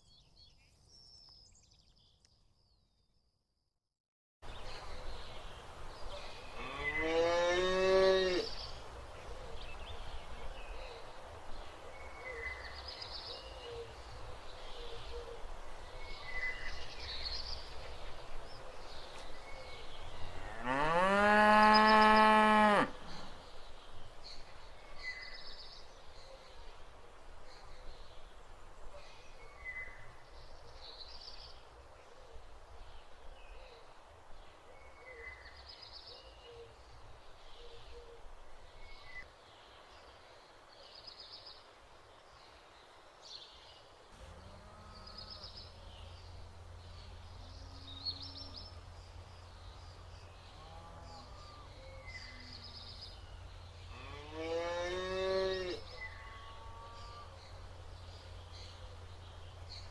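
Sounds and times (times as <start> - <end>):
cow mooing: 20.5 - 22.9, 53.9 - 57.4
low steady rumble: 44.1 - 53.9.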